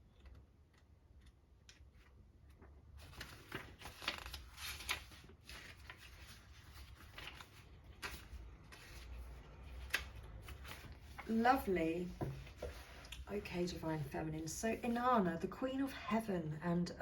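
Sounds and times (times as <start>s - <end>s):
paper leafed through by hand: 1.2s - 11.4s.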